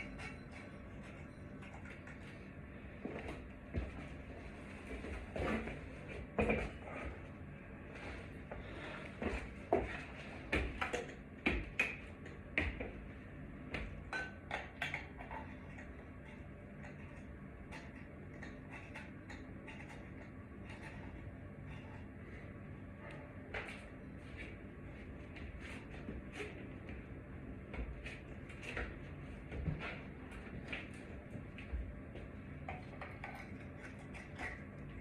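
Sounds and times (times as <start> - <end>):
faint low hum: 0.0 - 35.0.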